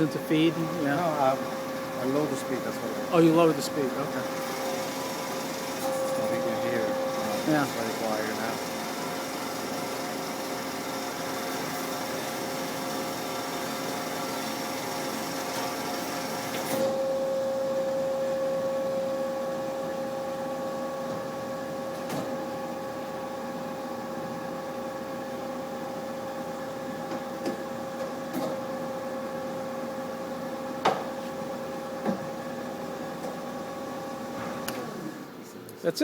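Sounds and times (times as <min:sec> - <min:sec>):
band saw humming: 0:00.0 - 0:12.5.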